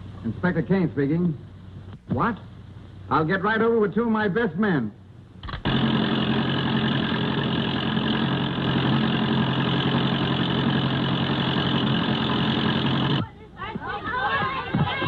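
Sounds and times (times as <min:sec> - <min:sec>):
car engine running: 0:05.6 - 0:13.2.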